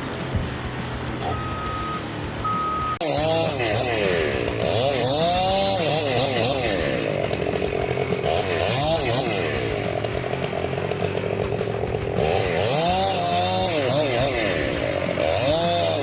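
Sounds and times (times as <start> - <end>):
chainsaw engine revving: 0.0 - 16.0
low steady engine: 0.0 - 16.0
short high beeps: 1.2 - 3.0.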